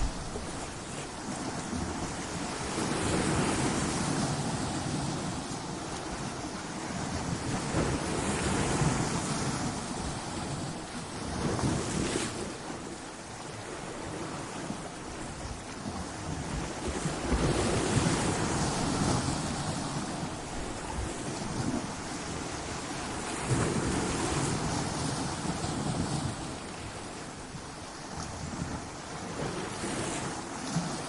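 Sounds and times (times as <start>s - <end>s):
surf breaking against rocks: 0.0s - 3.5s.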